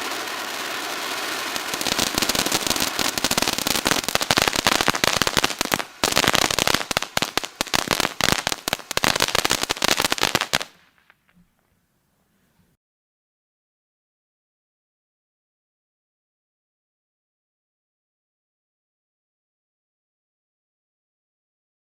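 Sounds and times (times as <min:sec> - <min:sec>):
firework fountain hissing and crackling: 0:00.0 - 0:11.1.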